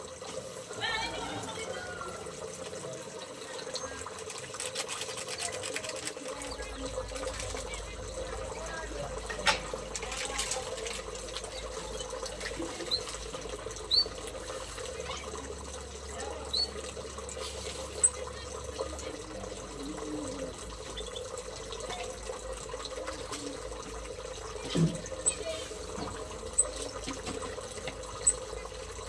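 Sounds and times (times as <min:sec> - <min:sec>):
watery background noise: 0:00.0 - 0:29.0
small birds chirping: 0:12.8 - 0:13.2, 0:13.8 - 0:14.2, 0:16.3 - 0:16.8.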